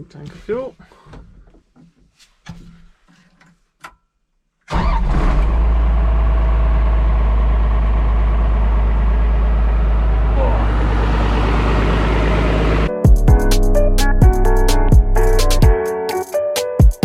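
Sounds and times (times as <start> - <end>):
bulldozer diesel engine running: 4.8 - 12.9.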